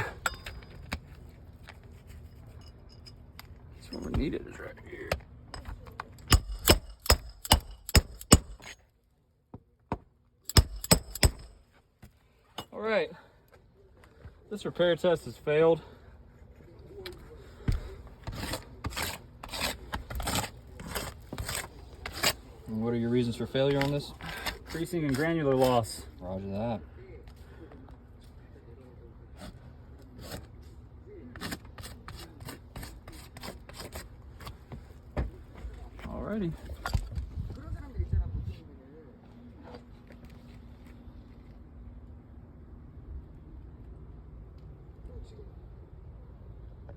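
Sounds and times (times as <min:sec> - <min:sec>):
hammer strikes: 0:05.1 - 0:08.7, 0:09.9 - 0:11.6.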